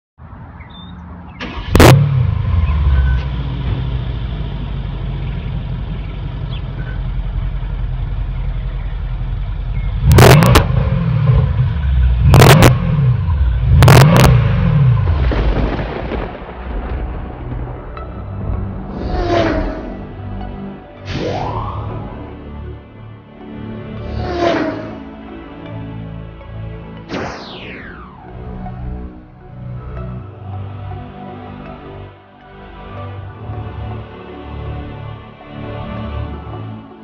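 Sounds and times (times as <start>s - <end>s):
car engine starting and idling: 1.3s - 15.4s
car engine revving: 1.4s - 15.8s, 18.9s - 20.2s, 24.0s - 25.1s.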